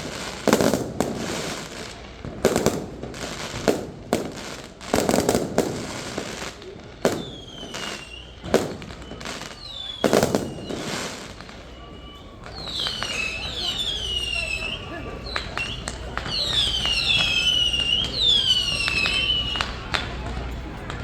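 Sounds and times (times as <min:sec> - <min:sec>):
fireworks booming: 0:00.0 - 0:21.0
fireworks crackling: 0:00.0 - 0:21.0
falling whistles: 0:07.0 - 0:20.2.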